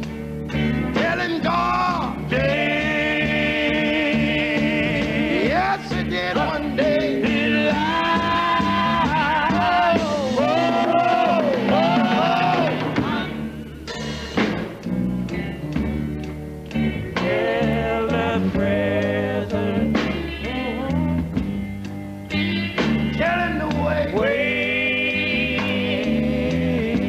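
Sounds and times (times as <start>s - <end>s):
band accompaniment with bass: 0.0s - 27.0s
male vocal quartet singing: 1.0s - 13.5s, 17.2s - 21.3s, 23.2s - 27.0s.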